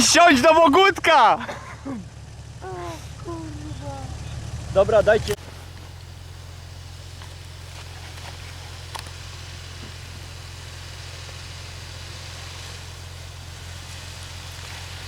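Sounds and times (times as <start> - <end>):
engine running with low hum: 0.0 - 15.0
even hiss: 0.0 - 15.0.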